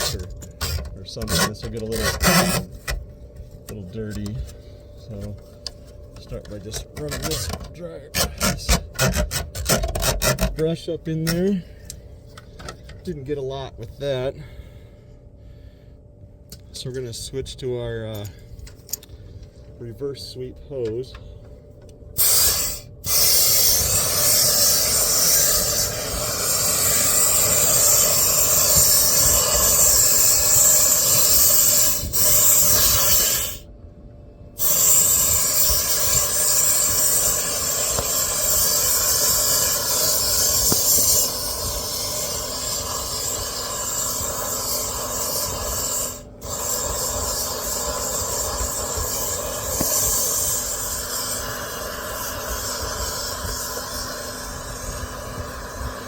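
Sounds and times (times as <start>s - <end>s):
compressed air hissing from hose: 22.2s - 33.6s, 34.6s - 56.0s.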